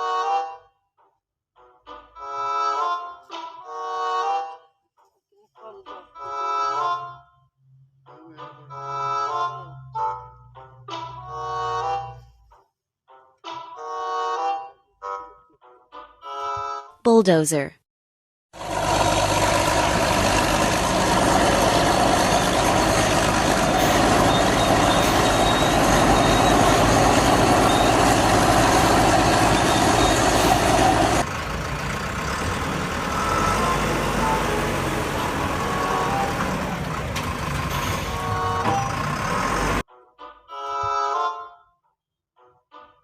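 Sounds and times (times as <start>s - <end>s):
bulldozer engine running: 18.6s - 39.8s.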